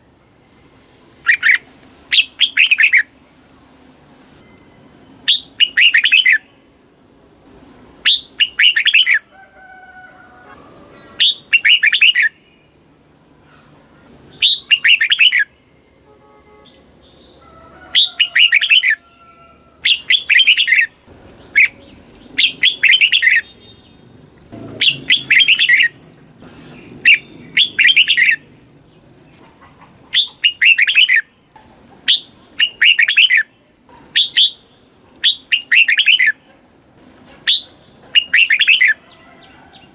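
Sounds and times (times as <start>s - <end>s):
bird singing warbling phrases: 1.2s - 3.1s, 4.6s - 6.6s, 8.0s - 9.4s, 10.9s - 12.8s, 13.4s - 15.9s, 16.6s - 19.0s, 19.8s - 31.4s, 32.0s - 36.4s, 37.4s - 39.0s.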